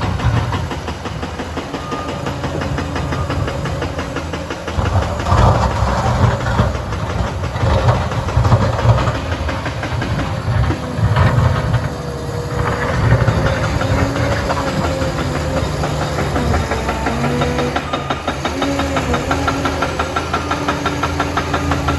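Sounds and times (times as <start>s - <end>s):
bulldozer diesel engine: 0.0s - 21.9s.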